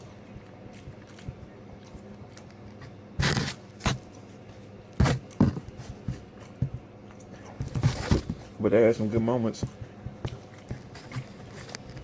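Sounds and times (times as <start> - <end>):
scraping and rustling at table: 3.2 - 8.6, 9.6 - 12.0.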